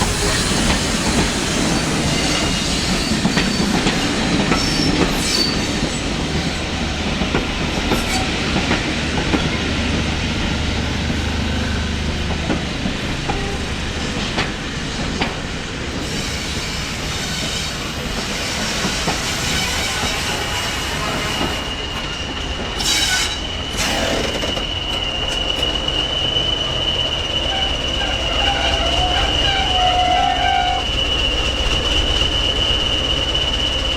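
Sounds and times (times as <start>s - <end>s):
train wheels clattering over rails: 0.0s - 33.9s
high-pitched wheel squeal: 16.1s - 33.9s.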